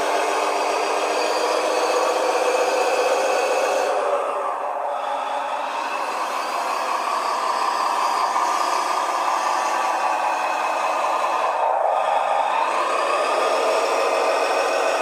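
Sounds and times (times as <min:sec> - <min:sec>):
simulated engine sound from speaker: 0:00.0 - 0:15.0.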